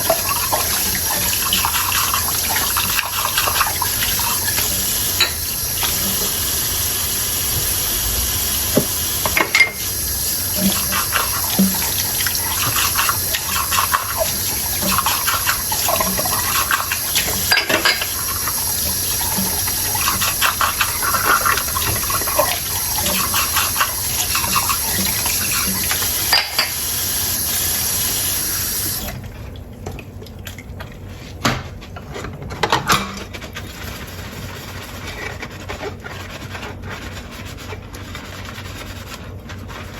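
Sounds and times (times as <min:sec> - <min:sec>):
tap running into a sink: 0:00.0 - 0:06.6, 0:07.3 - 0:26.8
dishes knocking: 0:08.8 - 0:09.9
crockery clinking: 0:09.3 - 0:09.9.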